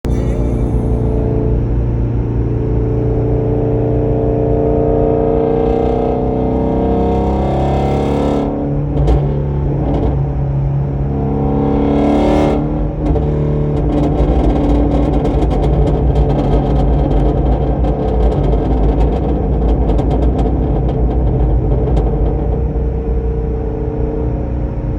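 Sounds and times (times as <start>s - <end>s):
car engine revving: 0.0s - 17.6s
exhaust crackling and popping: 12.6s - 23.3s.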